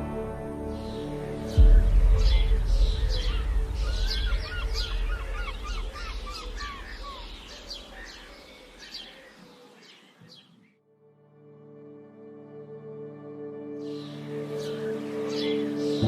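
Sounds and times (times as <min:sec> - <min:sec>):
songbirds chirping and singing: 0:00.0 - 0:10.8, 0:12.8 - 0:16.0
low rumble: 0:01.6 - 0:07.9.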